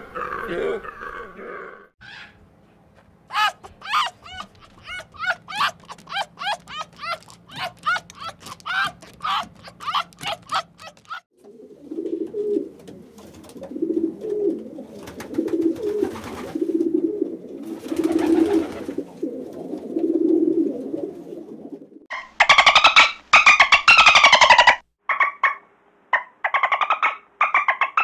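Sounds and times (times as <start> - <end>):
pigeons cooing: 3.3 - 22.8.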